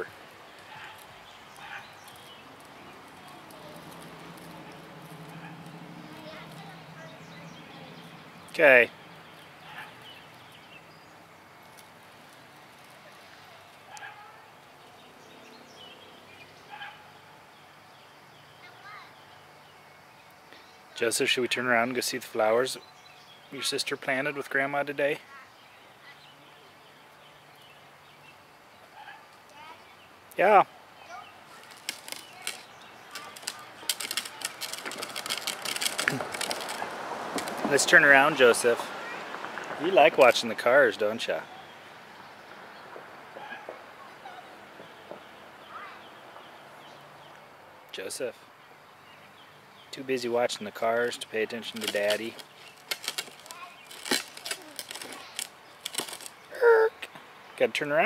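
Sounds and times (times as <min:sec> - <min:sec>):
small bike rattling and clicking: 0:00.0 - 0:14.2, 0:31.4 - 0:41.2, 0:50.6 - 0:56.5.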